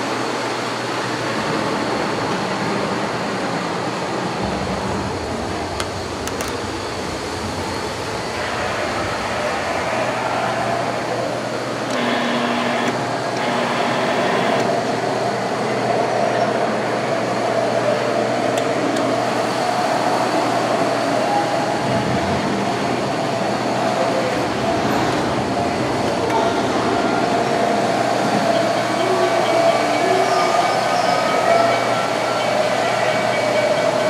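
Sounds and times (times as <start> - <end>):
train rolling on rails: 0.0 - 34.0.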